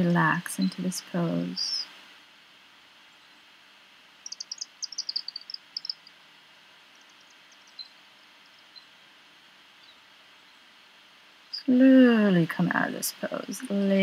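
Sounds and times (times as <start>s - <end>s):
low steady background hiss: 0.0s - 14.0s
bird chirping: 4.2s - 9.0s, 9.7s - 10.7s.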